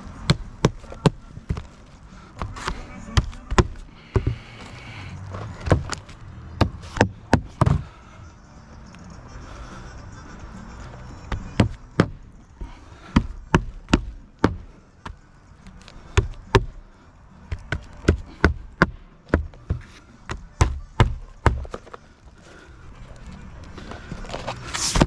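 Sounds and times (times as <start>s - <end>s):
hammer blows on a roof: 0.1s - 1.7s, 2.4s - 4.5s, 6.6s - 7.9s, 11.3s - 12.3s, 13.0s - 15.2s, 16.0s - 16.8s, 17.5s - 22.0s.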